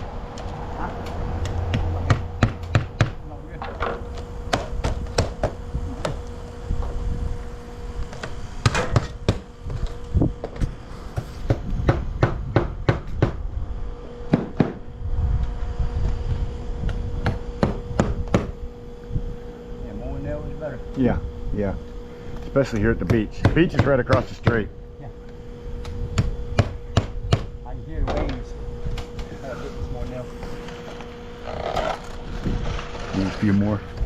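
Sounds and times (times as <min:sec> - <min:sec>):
hammer driving nails into siding: 0:11.5 - 0:13.4, 0:17.2 - 0:18.6, 0:23.1 - 0:24.6.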